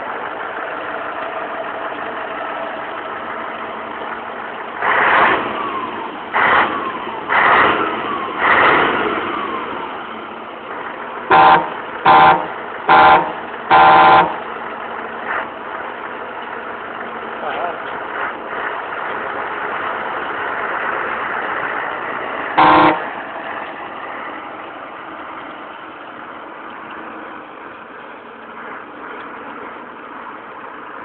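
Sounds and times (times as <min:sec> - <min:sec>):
truck engine running: 0:00.0 - 0:31.0
loud air horn blasts: 0:11.3 - 0:14.5, 0:22.6 - 0:23.1
truck horn blasts: 0:11.3 - 0:14.5, 0:22.6 - 0:23.2.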